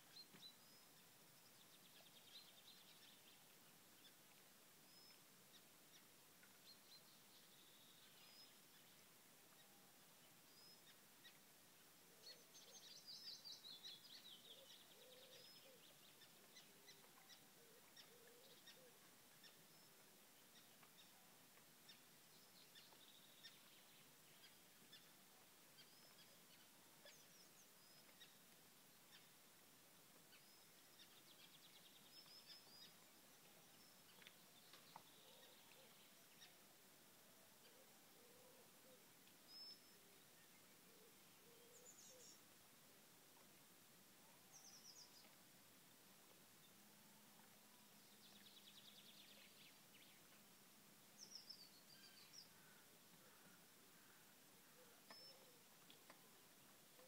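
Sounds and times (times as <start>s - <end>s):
birds calling: 51.2s - 57.0s.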